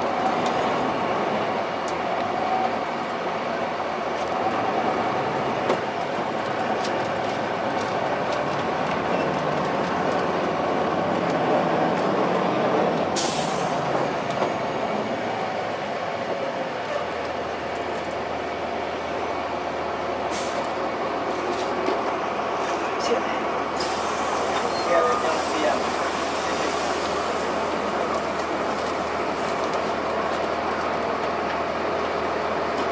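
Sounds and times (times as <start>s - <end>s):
bus diesel engine drone: 0.0s - 32.9s
air brake hiss: 13.2s - 13.7s, 20.3s - 20.7s, 23.8s - 25.6s.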